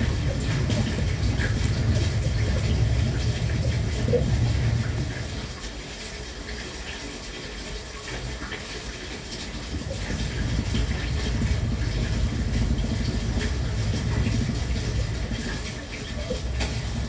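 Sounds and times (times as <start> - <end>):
train low rumble: 0.0 - 6.8, 8.2 - 17.0.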